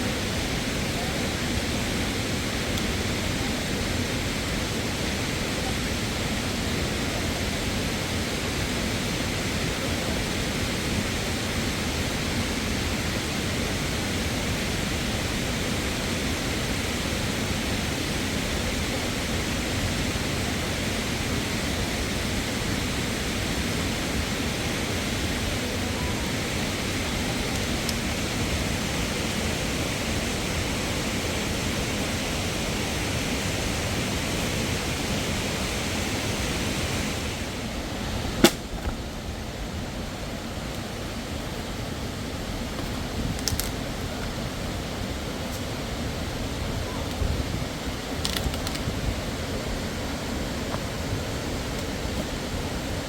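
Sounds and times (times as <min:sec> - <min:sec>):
waterfall rushing: 0:00.0 - 0:53.0
sharp click: 0:38.4 - 0:38.6.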